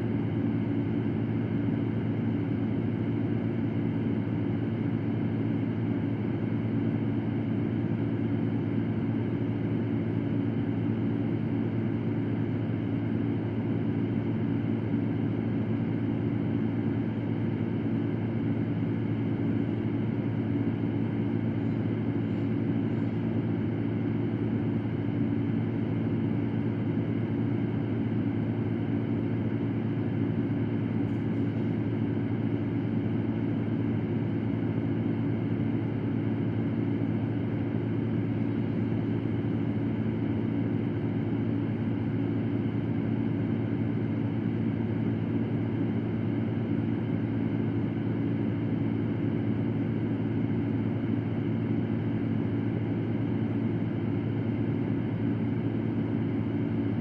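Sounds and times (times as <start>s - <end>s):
electric fan humming: 14.8s - 42.2s.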